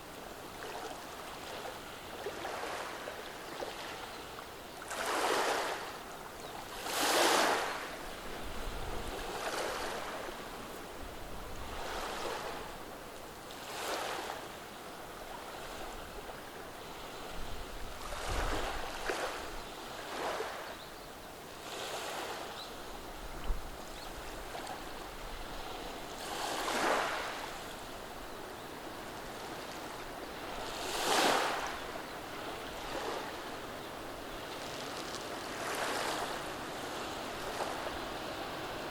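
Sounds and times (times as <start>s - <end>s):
waves washing over stones: 6.7s - 8.0s, 24.4s - 27.8s, 30.4s - 38.9s.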